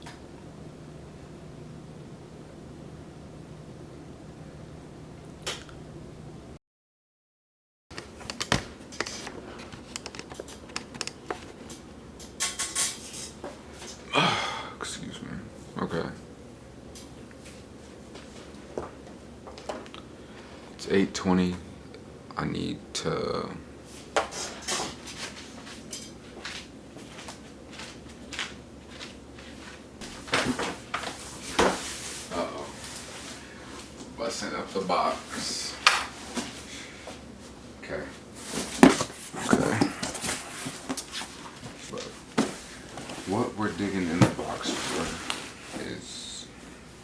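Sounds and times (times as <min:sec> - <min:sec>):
objects rustling and scraping: 0:08.1 - 0:14.0, 0:23.9 - 0:46.8.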